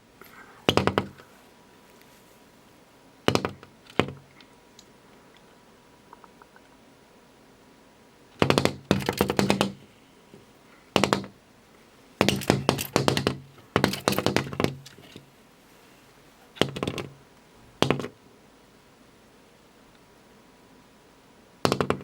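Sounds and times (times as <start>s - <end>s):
bird tapping on window glass: 0.7s - 1.2s, 3.3s - 4.2s, 8.4s - 9.8s, 11.0s - 11.4s, 12.2s - 15.2s, 16.6s - 17.2s, 17.8s - 18.1s, 21.6s - 22.0s.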